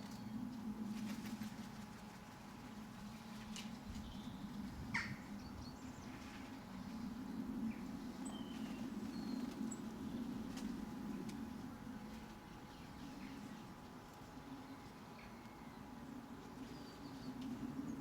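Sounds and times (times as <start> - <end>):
steady low rumble: 0.0 - 18.0
birds chirping: 3.8 - 18.0.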